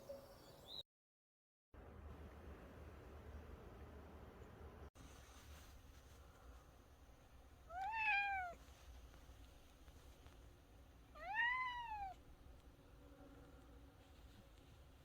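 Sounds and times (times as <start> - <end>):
cat meowing: 7.7 - 8.6, 11.1 - 12.2.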